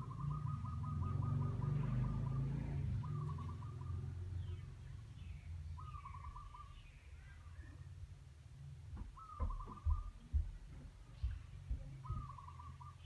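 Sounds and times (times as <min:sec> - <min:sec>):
bird singing fast trill: 0:00.0 - 0:07.6, 0:09.2 - 0:10.4, 0:12.0 - 0:13.0.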